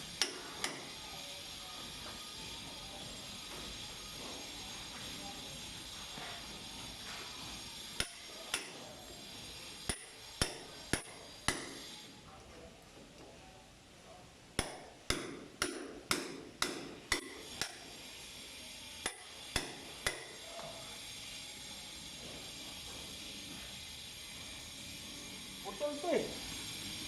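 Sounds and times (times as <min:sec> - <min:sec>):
hammer blows ringing: 0:08.0 - 0:08.8, 0:09.9 - 0:11.9, 0:14.6 - 0:18.0, 0:19.0 - 0:20.4.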